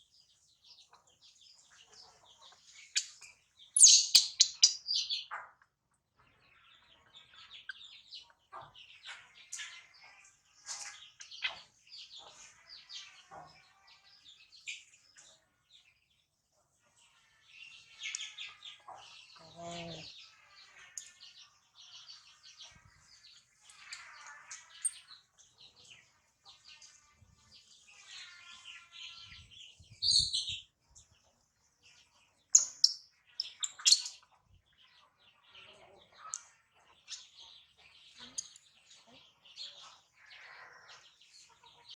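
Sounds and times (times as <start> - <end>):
baby monkey squeaking and crying: 3.8 - 4.8.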